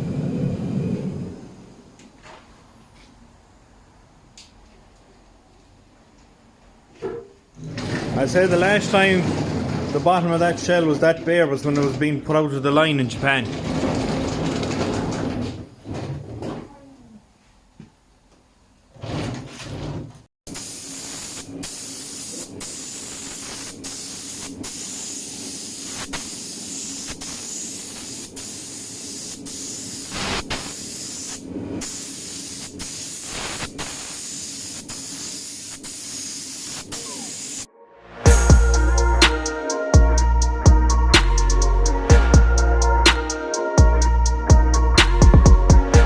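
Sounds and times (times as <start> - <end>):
spray gun hissing: 20.5 - 37.7, 38.3 - 40.5
music: 37.7 - 46.0.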